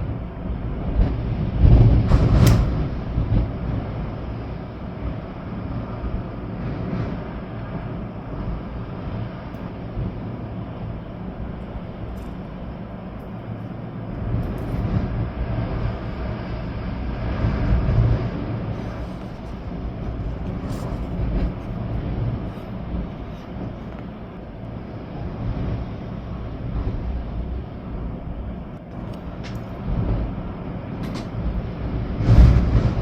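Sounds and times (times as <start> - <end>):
rain: 0.0 - 33.0
storm wind gusting through trees: 0.0 - 33.0.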